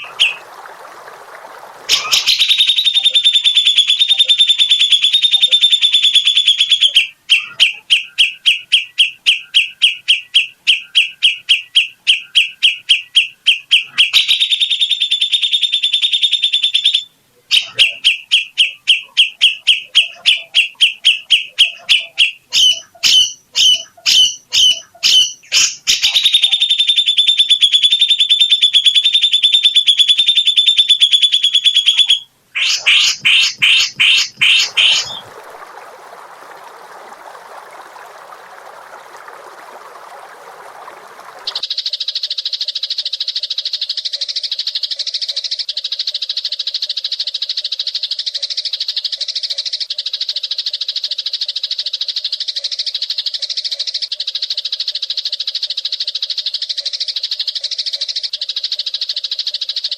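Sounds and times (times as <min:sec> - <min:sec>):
songbird singing rapid high notes: 0:01.9 - 0:35.3.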